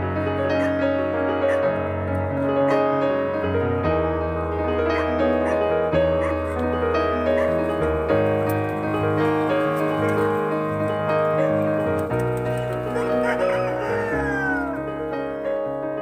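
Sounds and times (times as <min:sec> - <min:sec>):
piano music: 0:00.0 - 0:16.0
chickens clucking: 0:08.8 - 0:10.7, 0:11.4 - 0:14.8
rooster crowing: 0:12.8 - 0:14.9.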